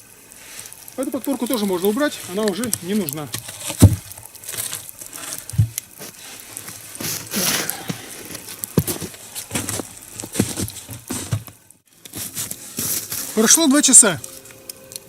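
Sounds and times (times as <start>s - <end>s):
fire crackling: 0.0s - 15.0s
wooden knocks and rustling: 3.3s - 6.2s, 8.8s - 11.6s.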